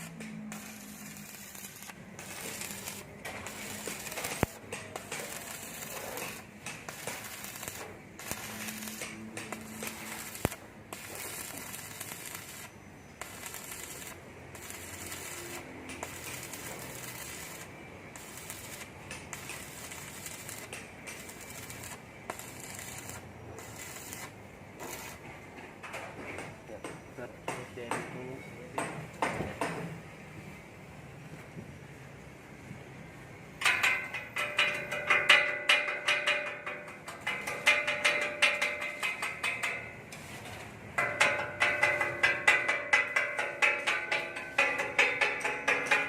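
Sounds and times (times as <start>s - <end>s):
arc welding crackling sizzle: 0.0s - 25.3s, 33.6s - 46.0s.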